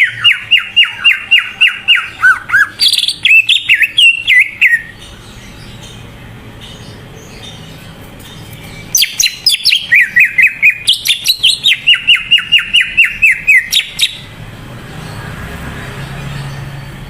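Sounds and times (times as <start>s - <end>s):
bird whistling downward notes: 8.9s - 14.2s.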